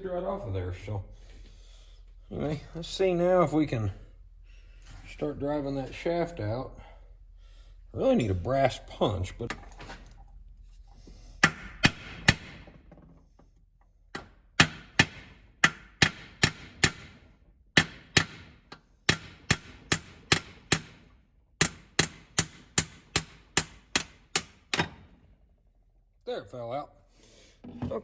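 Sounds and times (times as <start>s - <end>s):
hammer striking metal punch: 11.4s - 12.7s, 14.2s - 17.2s, 17.8s - 21.0s, 21.6s - 25.1s.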